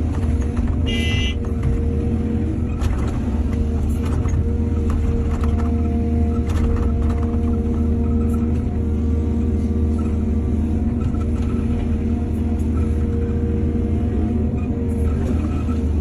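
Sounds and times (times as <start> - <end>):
heavy machinery diesel engine: 0.0 - 16.0.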